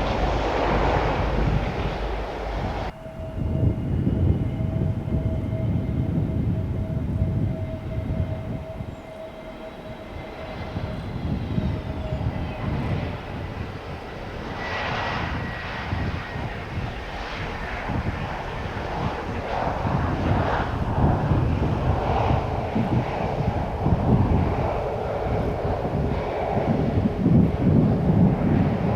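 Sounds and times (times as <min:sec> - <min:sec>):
jet engines whine and rumble: 0:00.0 - 0:28.9.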